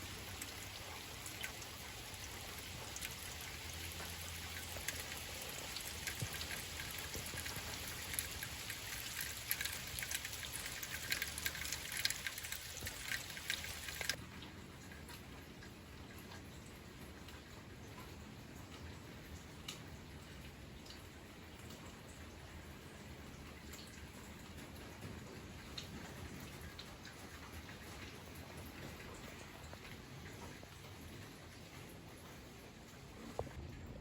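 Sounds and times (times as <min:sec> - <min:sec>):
rain hiss: 0:00.0 - 0:14.2
rain drops on hard surface: 0:00.0 - 0:34.0.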